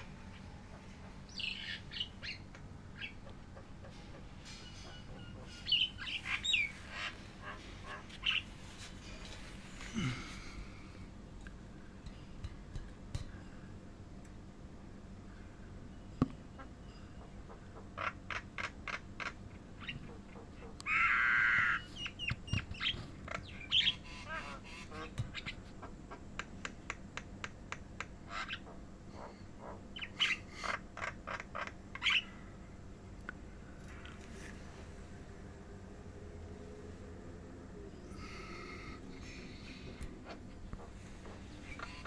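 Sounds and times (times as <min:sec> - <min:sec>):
bird chirping: 0:00.0 - 0:09.4, 0:37.8 - 0:42.0.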